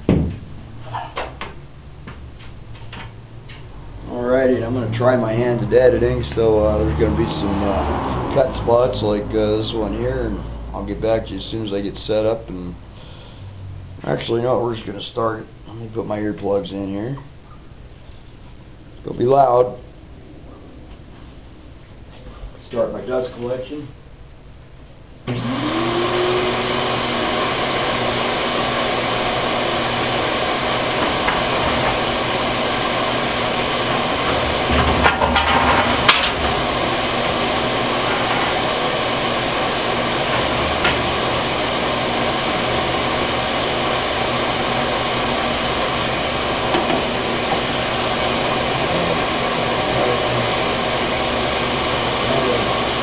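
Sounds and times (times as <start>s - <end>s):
dust collector motor rushing: 4.0s - 10.9s, 25.3s - 53.0s.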